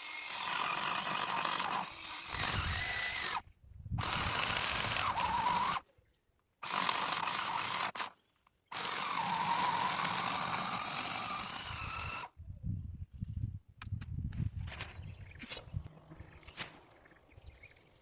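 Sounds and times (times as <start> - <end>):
chainsaw cutting branches: 0.0 - 3.4, 4.0 - 5.8, 6.6 - 8.1, 8.7 - 12.3.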